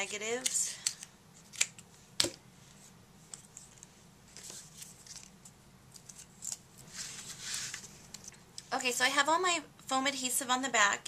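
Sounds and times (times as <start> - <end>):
paper rustling: 3.4 - 8.3.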